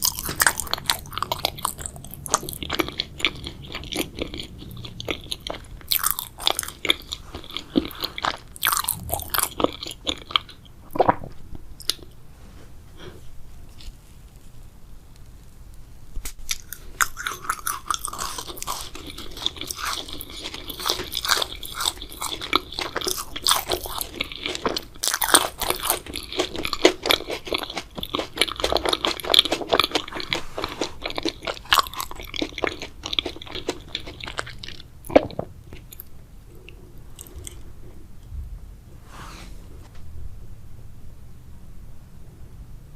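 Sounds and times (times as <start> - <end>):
chewing wet jelly: 0.0 - 11.2, 16.4 - 37.7.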